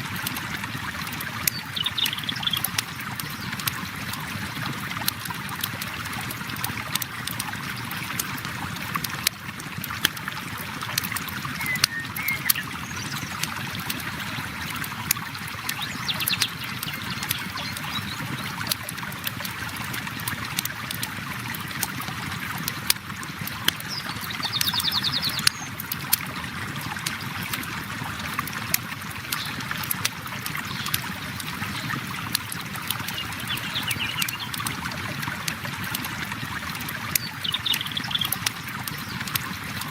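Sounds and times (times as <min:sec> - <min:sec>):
river water flowing: 0:00.0 - 0:39.9
bird chirps: 0:11.6 - 0:13.3, 0:33.2 - 0:34.5.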